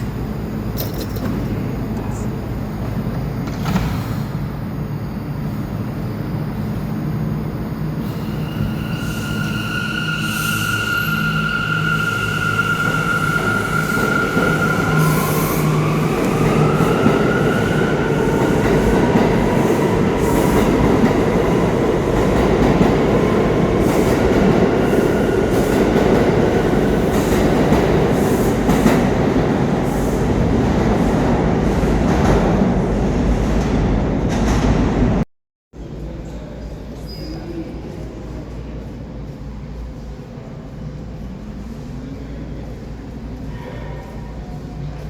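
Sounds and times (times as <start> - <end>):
train high whine: 0.0 - 31.2.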